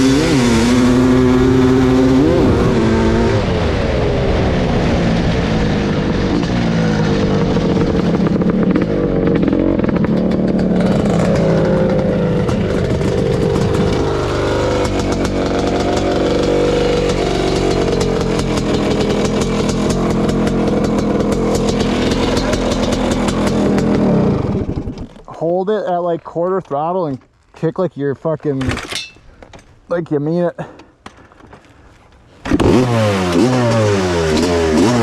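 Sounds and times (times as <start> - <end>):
two-stroke motorcycle engine revving: 0.0 - 25.1, 32.5 - 35.0.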